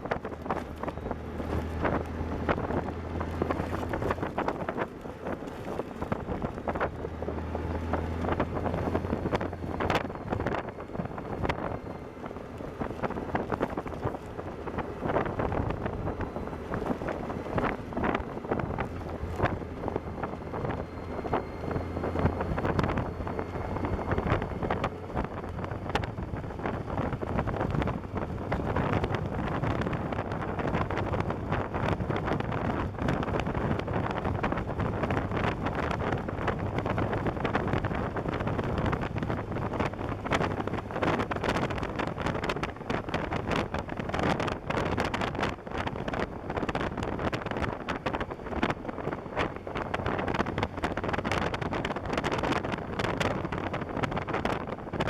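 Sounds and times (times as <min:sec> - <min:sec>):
motorcycle engine drone: 0:00.0 - 0:55.0
wind buffeting microphone: 0:00.0 - 0:55.0.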